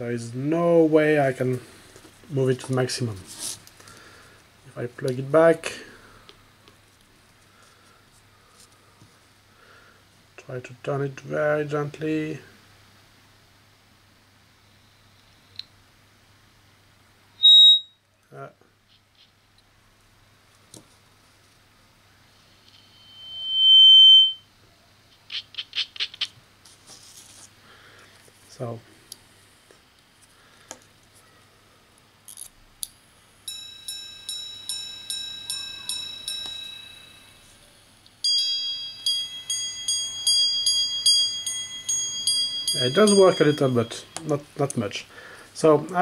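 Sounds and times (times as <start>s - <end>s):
high feedback whistle: 17.4s - 18.0s, 22.6s - 24.5s.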